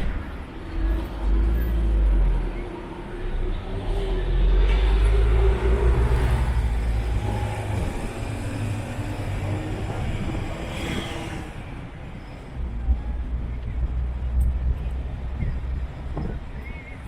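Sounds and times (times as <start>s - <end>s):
vehicle engine and tyre rumble: 0.0s - 17.0s.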